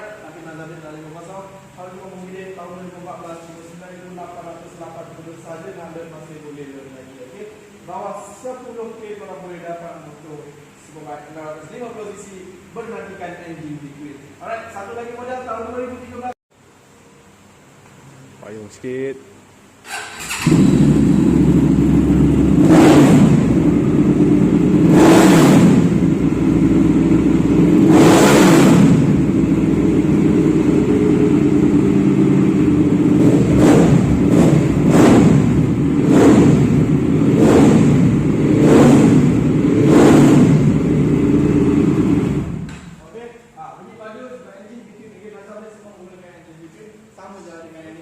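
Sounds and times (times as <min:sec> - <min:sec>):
motorcycle engine idling and revving: 0:19.9 - 0:42.7.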